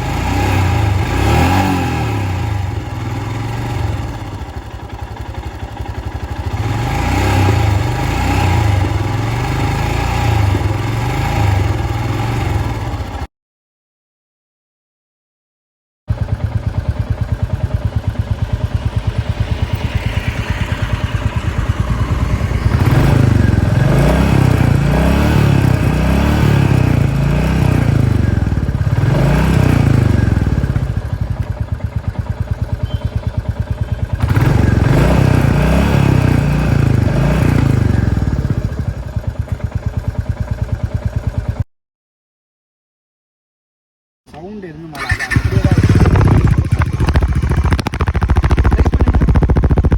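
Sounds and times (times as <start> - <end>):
motorcycle engine idling and revving: 0.0 - 13.3, 16.1 - 41.7, 44.3 - 49.9.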